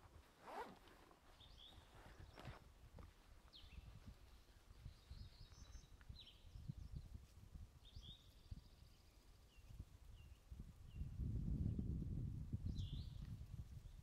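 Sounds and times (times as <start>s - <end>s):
faint bird chirps: 1.3s - 2.6s, 3.5s - 7.2s, 7.8s - 11.2s.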